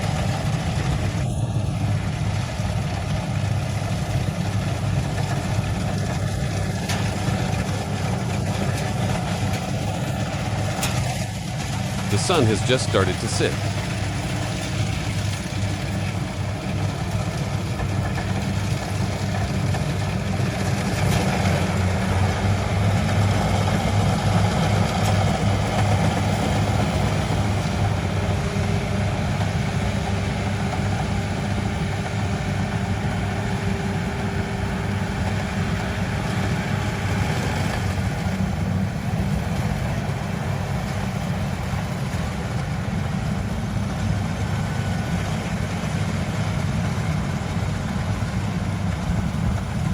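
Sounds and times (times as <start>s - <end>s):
combine harvester engine humming: 0.0s - 49.9s.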